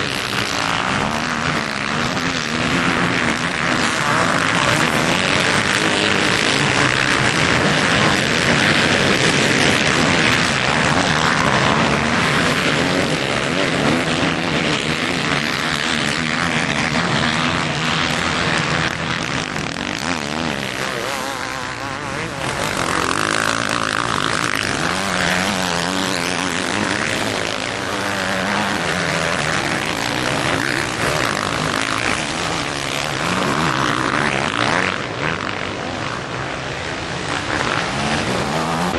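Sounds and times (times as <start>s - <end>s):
motocross engines revving: 0.0s - 38.9s.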